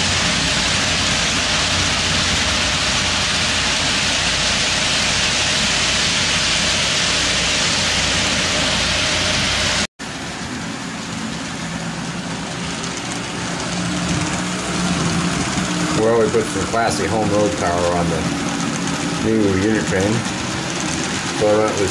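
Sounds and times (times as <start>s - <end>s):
faint motor hum: 0.0s - 21.9s
model train wheels clattering: 12.2s - 21.9s.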